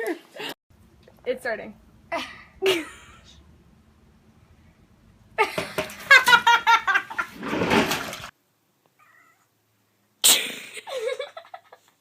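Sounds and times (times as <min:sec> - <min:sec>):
cat meowing: 0:09.0 - 0:09.5.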